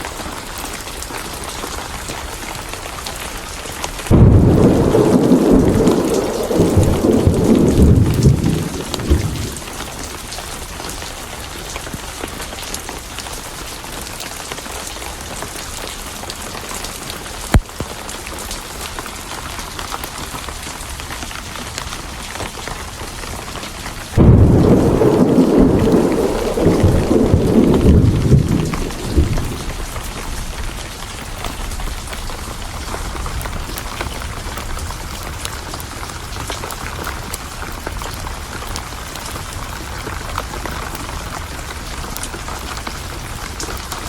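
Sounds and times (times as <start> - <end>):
steady rain: 0.0 - 44.0
thunder rumbling: 4.0 - 10.4, 23.1 - 34.2.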